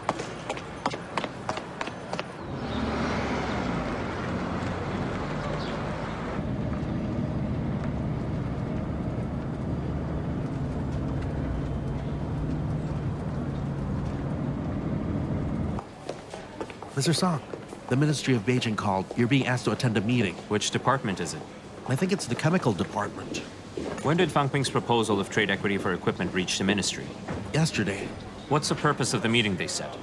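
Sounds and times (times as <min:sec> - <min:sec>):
vehicle engine running: 0:02.5 - 0:15.8.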